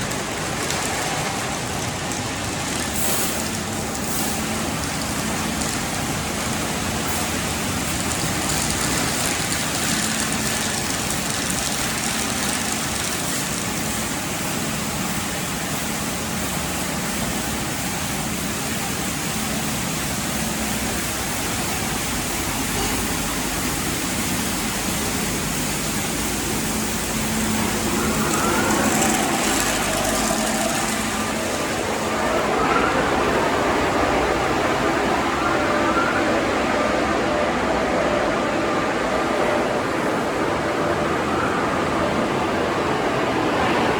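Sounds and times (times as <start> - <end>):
hiss of spraying water: 0.0 - 32.4
constant low machinery hum: 0.0 - 43.9
rising whine: 26.5 - 43.9.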